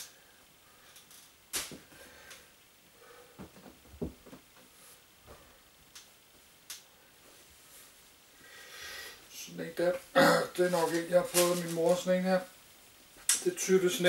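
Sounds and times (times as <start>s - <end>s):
clothes rustling: 9.8s - 12.3s.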